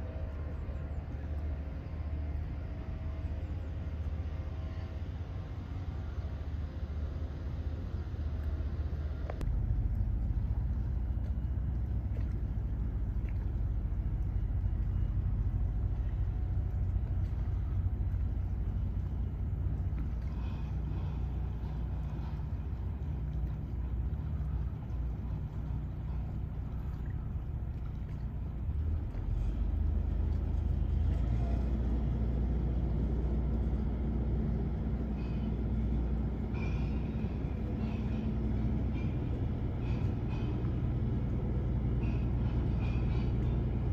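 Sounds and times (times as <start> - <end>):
heavy diesel engine rumble: 0.0 - 43.9.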